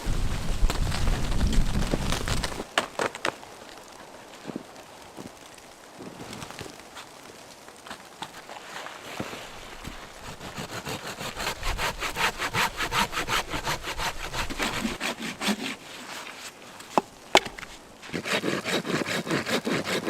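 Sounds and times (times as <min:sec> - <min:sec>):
hand saw cutting wood: 0:10.2 - 0:16.5, 0:18.0 - 0:20.0.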